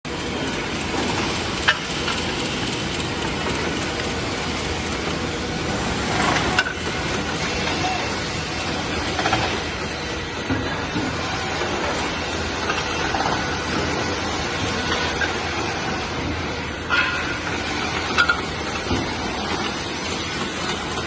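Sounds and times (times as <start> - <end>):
rip saw machine running: 0.1 - 21.0.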